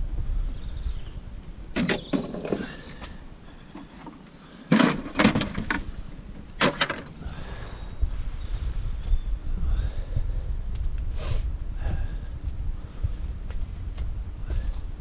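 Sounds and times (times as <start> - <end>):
clunks and knocks: 1.7 - 3.1, 3.7 - 7.2.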